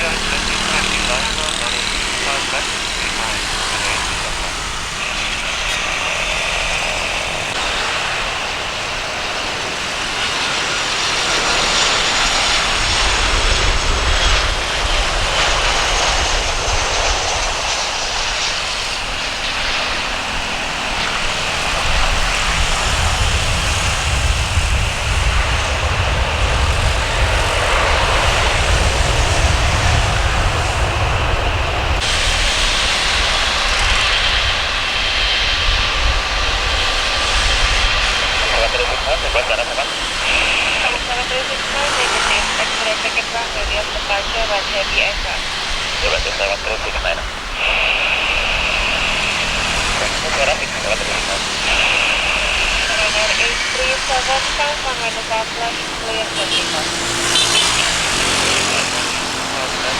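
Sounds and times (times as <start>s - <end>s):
jet airliner engines running: 0.0s - 59.9s.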